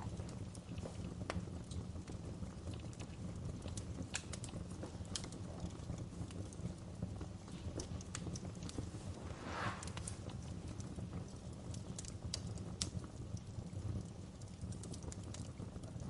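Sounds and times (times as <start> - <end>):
logs crackling and popping: 0.0 - 16.0
low rumble of fire: 0.0 - 16.0
short hiss: 9.1 - 10.4.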